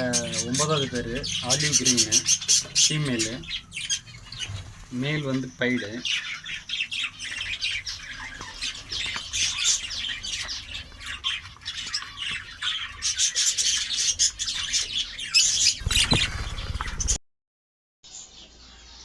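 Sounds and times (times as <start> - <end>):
budgerigars chattering and squawking: 0.0 - 17.2.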